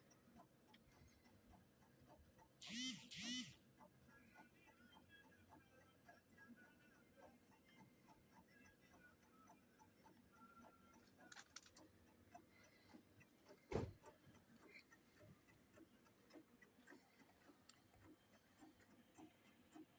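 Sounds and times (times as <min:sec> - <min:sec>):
small clicks: 0:10.9 - 0:11.9.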